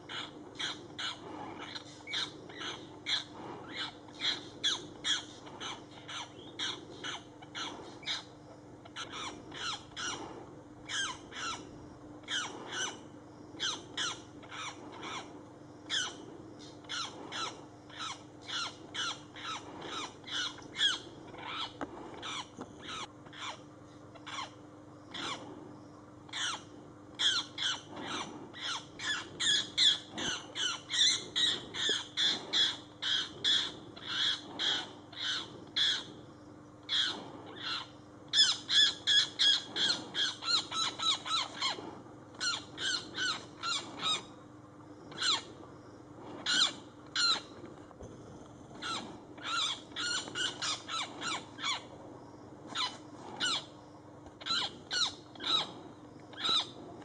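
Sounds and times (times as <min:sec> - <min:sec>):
bird giving harsh distress calls: 0:26.3 - 0:36.1, 0:36.9 - 0:41.8, 0:42.4 - 0:44.3, 0:48.8 - 0:51.9, 0:54.4 - 0:56.8.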